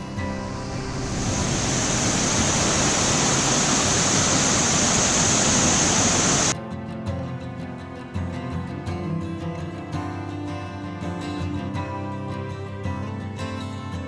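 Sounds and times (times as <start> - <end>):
waterfall rushing: 0.0 - 6.6
guitar background music: 0.0 - 14.0.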